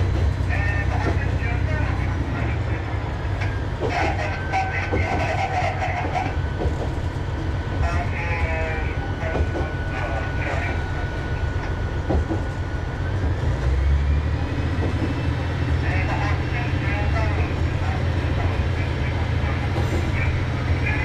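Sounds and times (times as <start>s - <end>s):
diesel railcar engine drone: 0.0s - 21.0s.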